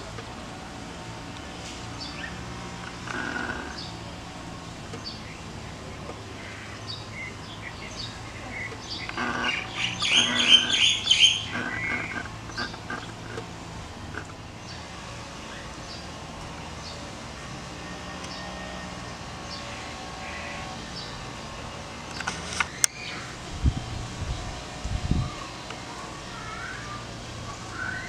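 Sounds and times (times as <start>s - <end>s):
steady low hum: 0.0s - 17.6s
small birds chirping: 0.0s - 28.0s
rapid bird calls: 1.2s - 17.1s, 18.3s - 23.5s, 25.2s - 28.0s.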